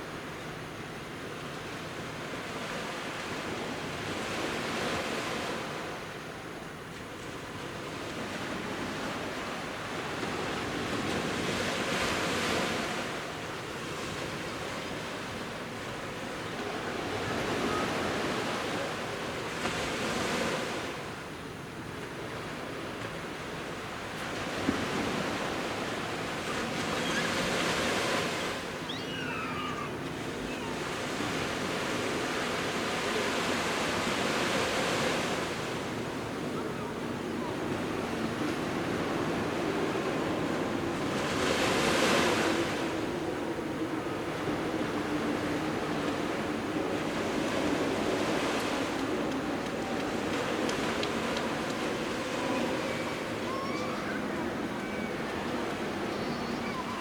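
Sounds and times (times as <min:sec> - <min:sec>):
sea surf breaking: 0:22.1 - 0:57.0.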